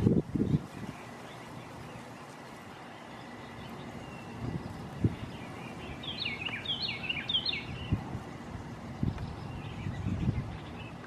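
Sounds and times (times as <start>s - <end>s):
songbird whistling: 0.4s - 11.0s.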